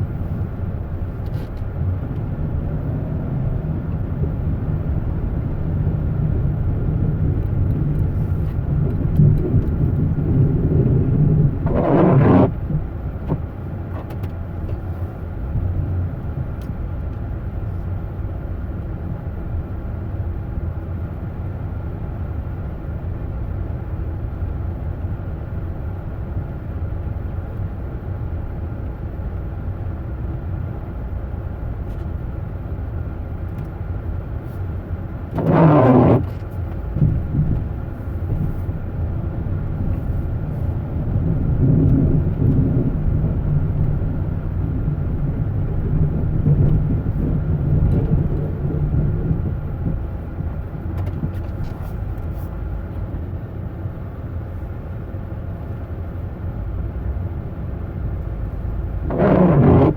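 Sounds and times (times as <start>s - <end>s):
low engine rumble: 0.0s - 59.9s
rush of noise: 9.7s - 12.7s, 35.4s - 36.4s, 59.0s - 59.9s.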